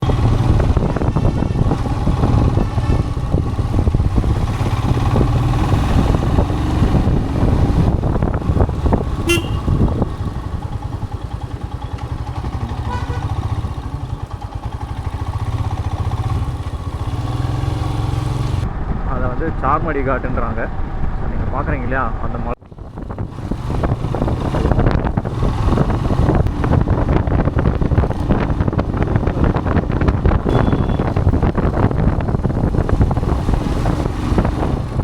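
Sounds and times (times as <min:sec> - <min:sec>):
motorcycle engine running: 0:00.0 - 0:18.7, 0:22.6 - 0:35.0
vehicle horn toot: 0:09.2 - 0:10.0, 0:12.6 - 0:13.5, 0:30.5 - 0:31.2.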